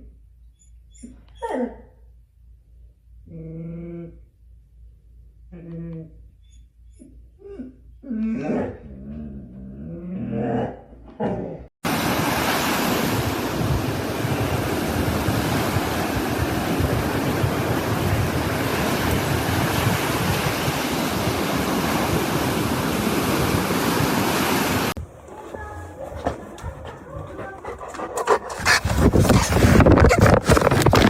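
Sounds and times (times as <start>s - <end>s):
loud rushing noise with buffeting: 11.9s - 24.9s.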